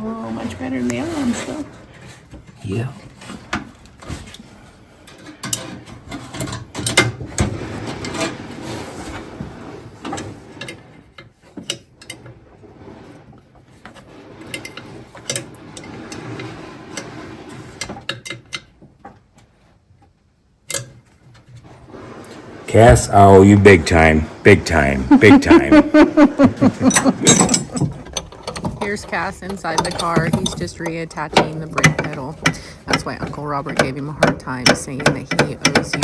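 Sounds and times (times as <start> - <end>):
hand tools clicking on metal: 26.8 - 28.7.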